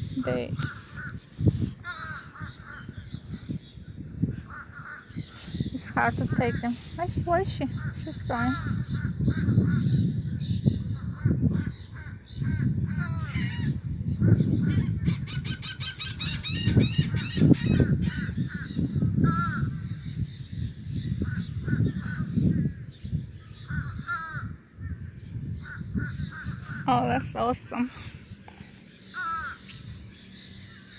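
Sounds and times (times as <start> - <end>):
steady low rumble: 0.0 - 15.4
parrots squawking and chattering: 0.1 - 3.6, 4.3 - 20.2, 21.0 - 22.8, 23.4 - 25.0, 25.6 - 27.2, 28.9 - 30.9.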